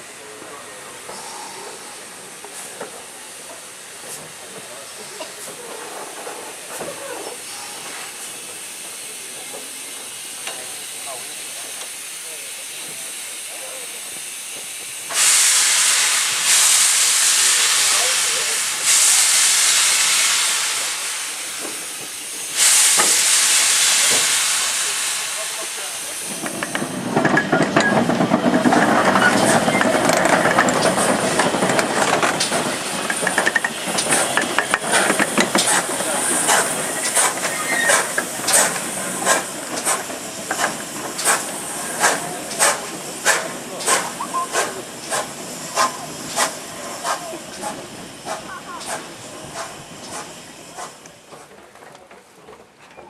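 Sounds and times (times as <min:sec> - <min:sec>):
steady low steam hiss: 0:00.0 - 0:51.5
steam locomotive hissing blasts: 0:00.0 - 0:51.5.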